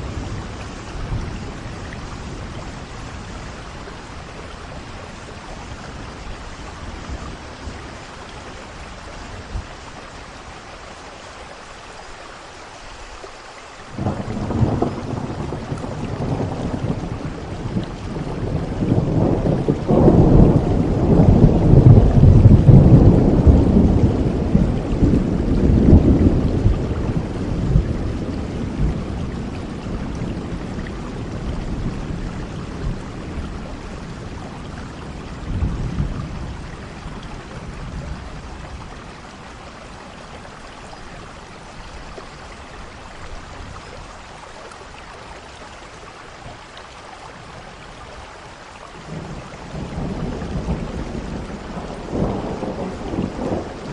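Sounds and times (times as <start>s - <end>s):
steady rain hiss: 0.0s - 53.9s
thunder rolling: 14.0s - 34.4s, 49.1s - 53.9s.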